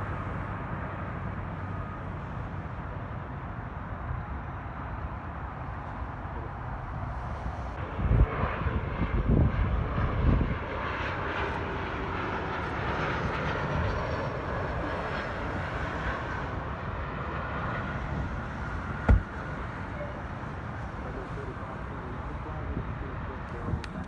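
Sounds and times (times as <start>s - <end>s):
low rumbling thumps: 19.1s - 19.5s.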